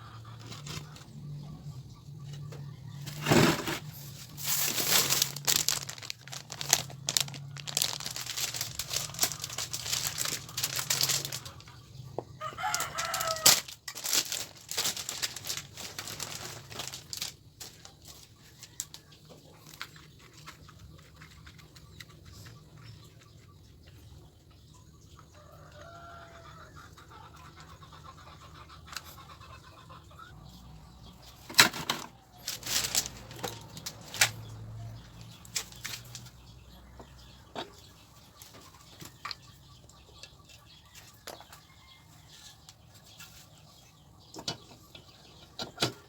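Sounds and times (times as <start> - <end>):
rooster crowing: 12.4 - 13.7, 25.4 - 26.7.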